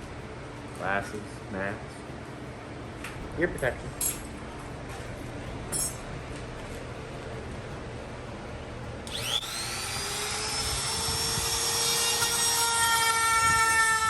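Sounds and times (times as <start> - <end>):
electric router motor whine: 9.0 - 14.0.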